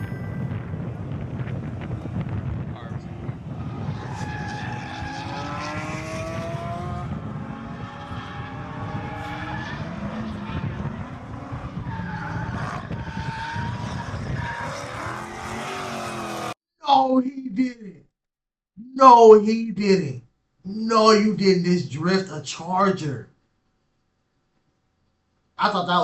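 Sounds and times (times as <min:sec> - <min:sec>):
car engine revving hard: 0:03.4 - 0:16.6.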